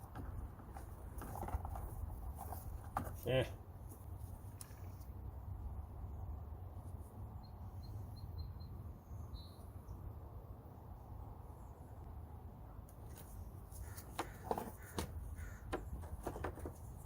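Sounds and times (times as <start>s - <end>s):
small bird chirping: 7.4s - 10.0s.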